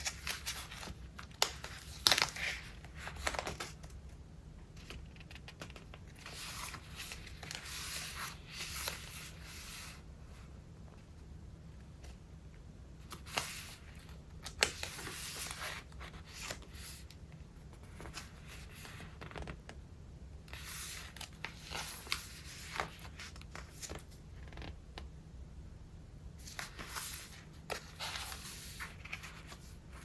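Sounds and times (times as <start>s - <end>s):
notebook pages turning: 0.0s - 4.0s, 4.8s - 10.0s, 13.0s - 17.1s, 17.8s - 19.6s, 20.5s - 24.8s, 26.4s - 30.0s.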